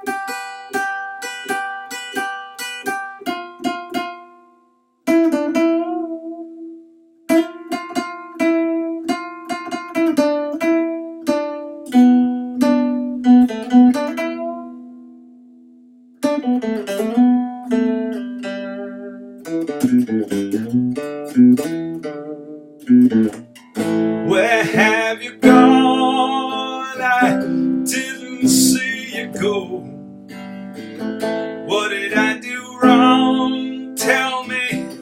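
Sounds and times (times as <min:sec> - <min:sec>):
acoustic guitar playing: 0:00.0 - 0:35.0.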